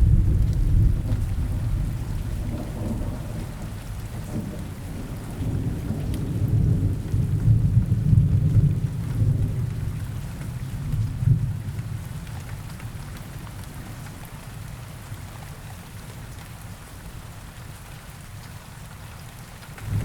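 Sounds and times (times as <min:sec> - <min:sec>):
rolling thunder: 0:00.0 - 0:09.7, 0:19.8 - 0:20.0
rain falling in forest: 0:00.0 - 0:20.0.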